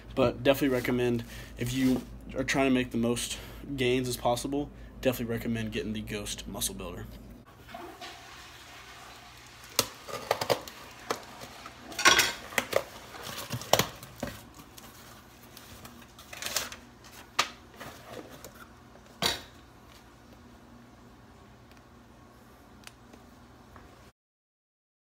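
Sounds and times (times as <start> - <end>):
dishes clattering and clinking: 11.9 - 12.8.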